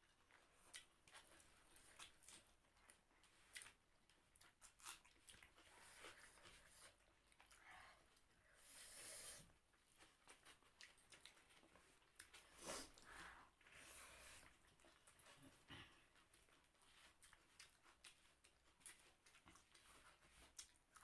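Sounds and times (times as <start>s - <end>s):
people chewing: 0.0s - 8.9s, 9.7s - 21.0s
breathy hiss: 8.4s - 9.5s.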